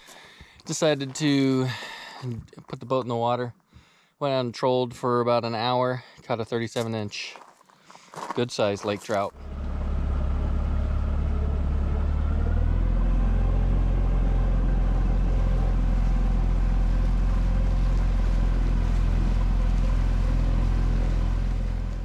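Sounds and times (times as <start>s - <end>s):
outboard motor running: 9.3s - 22.0s.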